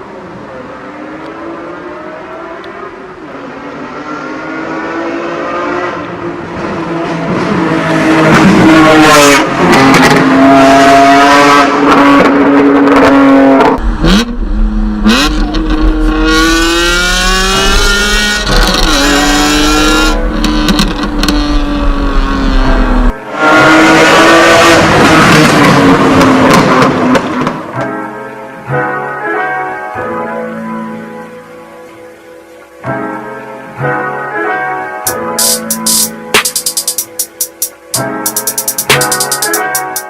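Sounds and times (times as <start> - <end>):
car engine revving through gears: 3.4 - 27.6
steady low rumble: 13.8 - 23.2.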